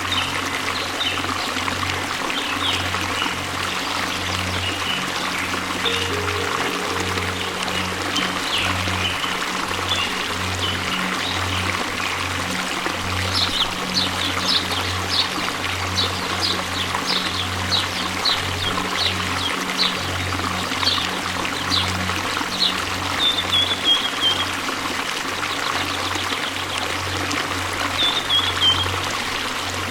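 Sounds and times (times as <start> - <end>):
waterfall rushing: 0.0 - 25.4.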